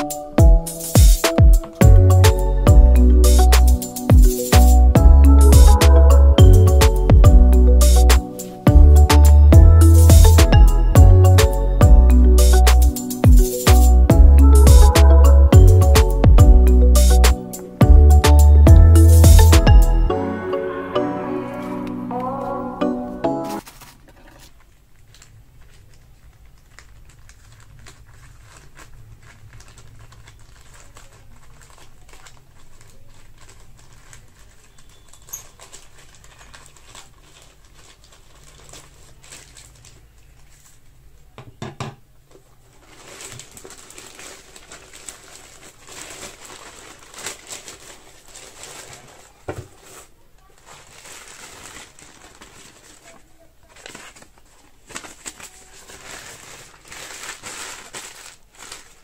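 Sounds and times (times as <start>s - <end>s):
packaging crinkling and rustling: 23.5s - 41.2s, 42.3s - 59.0s.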